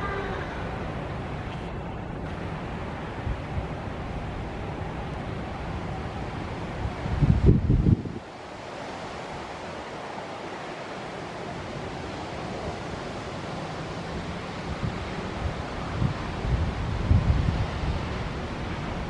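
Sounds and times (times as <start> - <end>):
wind buffeting microphone: 0.0 - 9.7, 14.0 - 19.0.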